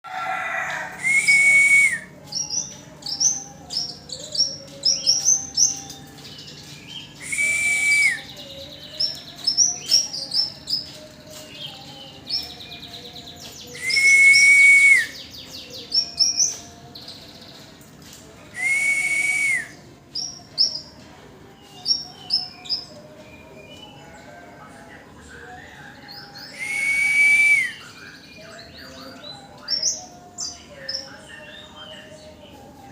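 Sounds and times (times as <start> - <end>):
warbler chirping: 0.7 - 17.6.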